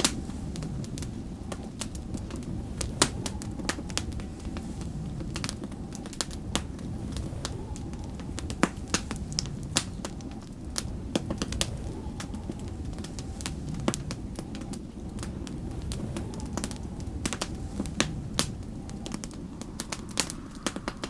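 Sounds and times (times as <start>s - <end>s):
low wind rumble: 0.0s - 21.0s
wood fire crackling: 0.0s - 21.0s.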